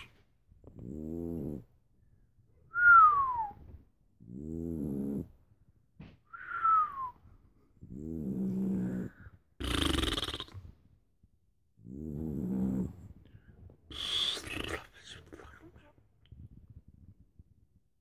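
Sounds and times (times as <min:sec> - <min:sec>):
dog snoring and whistling: 0:02.7 - 0:05.3, 0:06.3 - 0:10.4, 0:11.9 - 0:12.9
dog snorting: 0:07.9 - 0:10.7.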